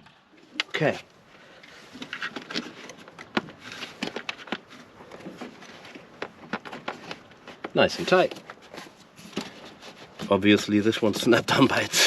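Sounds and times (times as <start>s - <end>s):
handling noise: 0.5s - 11.9s.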